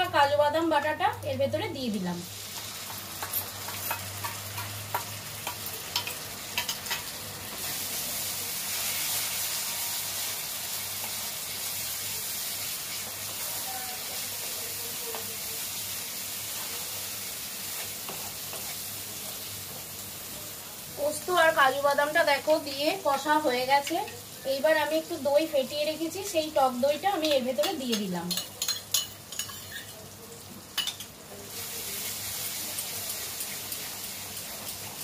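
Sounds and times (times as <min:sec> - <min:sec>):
paste frying in oil: 0:00.0 - 0:35.0
stirring clicks against pan: 0:02.8 - 0:07.1.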